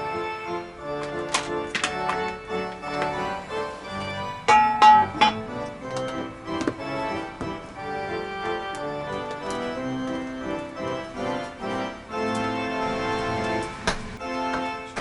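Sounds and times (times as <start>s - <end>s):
organ-like keyboard chords: 0.0s - 15.0s.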